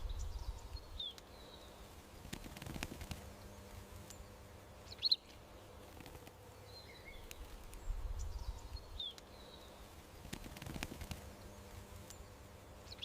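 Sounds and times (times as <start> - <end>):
bird chirps: 3.3 - 5.4, 11.1 - 13.0.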